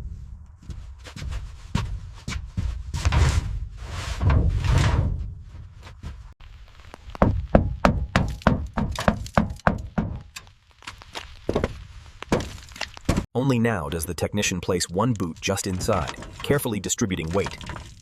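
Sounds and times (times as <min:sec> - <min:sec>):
rough scraping and rustling: 0:00.9 - 0:07.5, 0:10.5 - 0:13.3, 0:14.9 - 0:18.0
quick knocks and thuds: 0:07.2 - 0:10.3.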